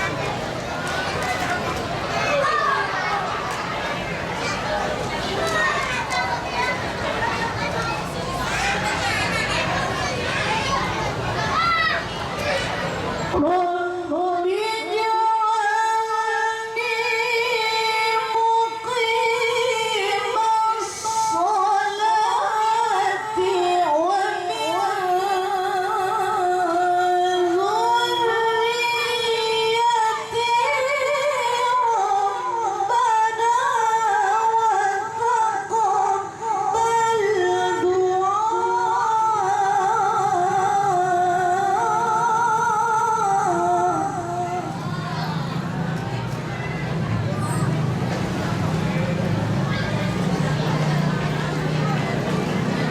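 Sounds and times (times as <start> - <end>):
woman chanting melodically: 13.3 - 46.3.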